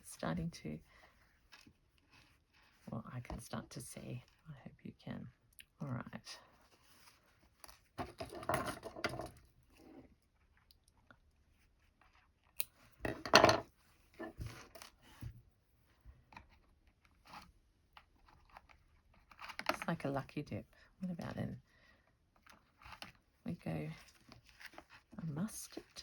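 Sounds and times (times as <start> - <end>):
embroidery threads rustling: 0.0 - 4.4.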